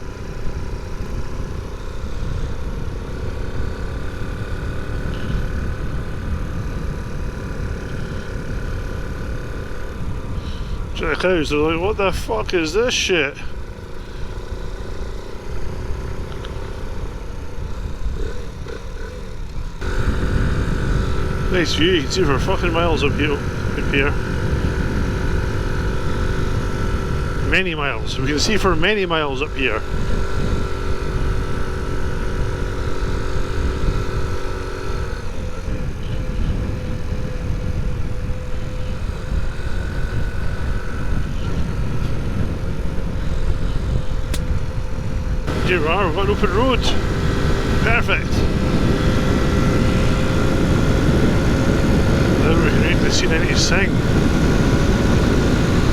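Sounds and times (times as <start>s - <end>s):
small motorcycle engine running: 0.0s - 55.9s
wind rumbling over microphone: 0.0s - 55.9s.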